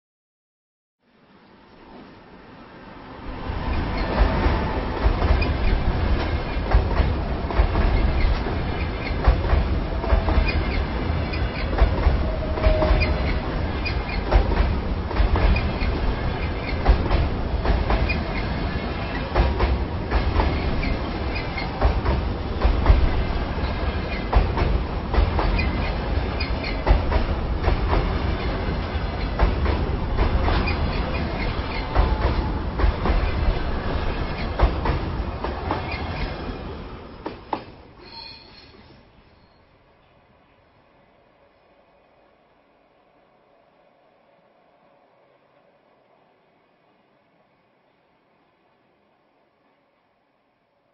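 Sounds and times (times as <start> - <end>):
train rumbling over bridge: 1.0 - 50.1
wheel squeals: 38.0 - 39.7.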